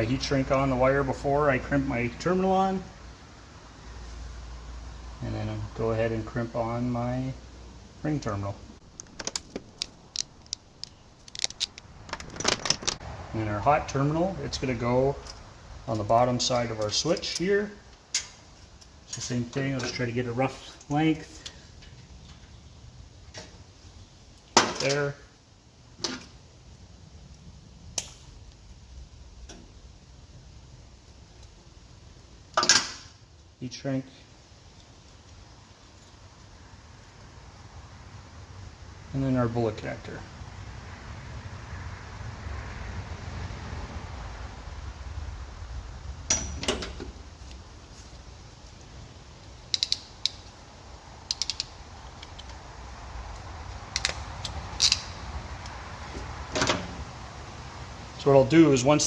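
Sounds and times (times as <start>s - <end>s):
wire scraping or rustling: 8.9s - 13.1s
hand tool clicks: 49.7s - 50.4s, 51.2s - 52.6s, 53.9s - 55.8s.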